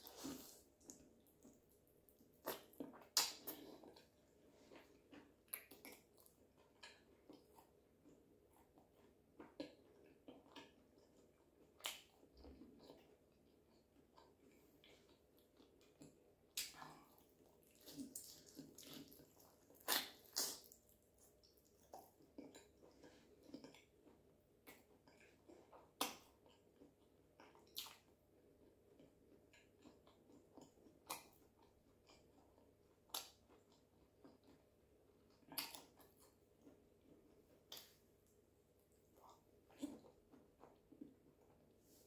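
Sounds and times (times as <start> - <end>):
soft chewing: 0.0 - 42.0
wet mouth smacks and clicks: 2.4 - 3.6.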